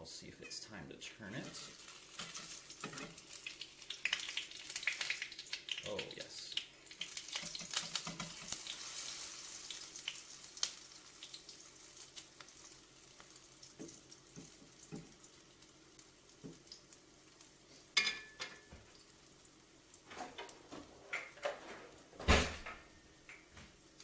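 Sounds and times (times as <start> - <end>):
food frying in hot oil: 1.3 - 21.4, 23.3 - 24.0
spatula and dishes clattering: 1.4 - 4.4, 7.0 - 8.8, 17.9 - 18.8.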